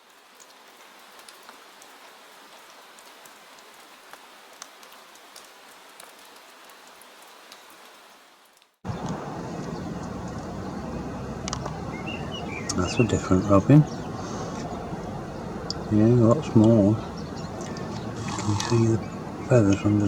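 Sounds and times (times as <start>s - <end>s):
light rain hissing: 0.0s - 20.0s
raindrops ticking: 0.0s - 20.0s
low outdoor rumble: 8.9s - 20.0s.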